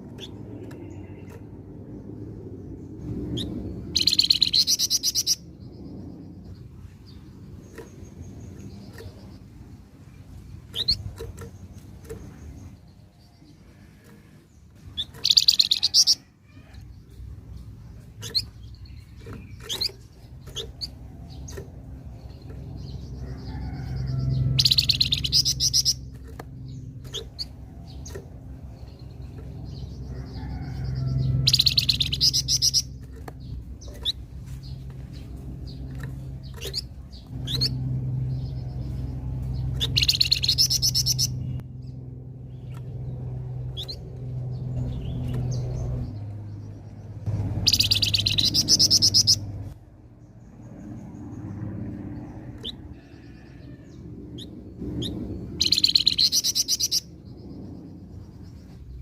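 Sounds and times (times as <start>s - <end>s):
low steady hum: 0.0s - 59.0s
bird chirps and calls: 3.0s - 41.6s, 42.5s - 49.7s, 52.5s - 59.0s
songbird buzzy trilling: 3.3s - 5.6s, 10.2s - 17.2s, 17.9s - 46.0s, 47.3s - 49.8s, 52.5s - 57.4s.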